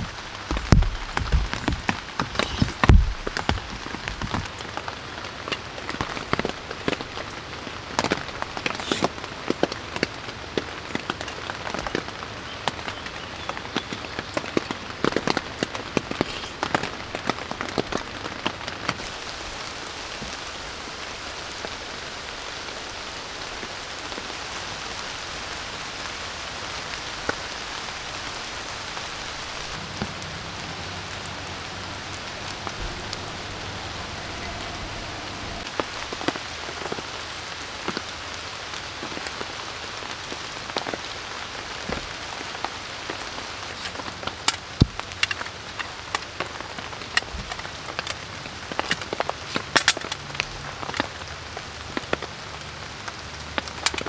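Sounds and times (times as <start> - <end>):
rain falling on a tent: 0.0 - 54.0
sharp taps on tent: 0.5 - 3.6.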